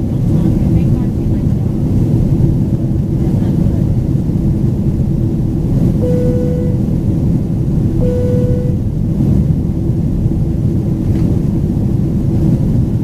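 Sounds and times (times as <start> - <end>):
jet engine cabin rumble: 0.0 - 13.0
short steady tone: 6.0 - 6.9, 8.0 - 8.9.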